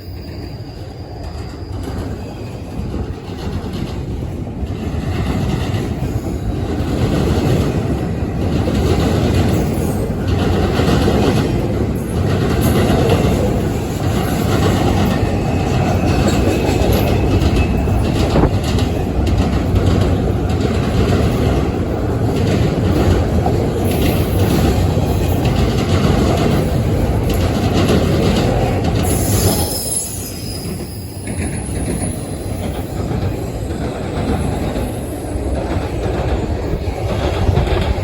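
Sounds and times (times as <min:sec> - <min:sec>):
train cars rumbling on rails: 0:00.0 - 0:38.0
high wheel squeal: 0:29.0 - 0:33.8.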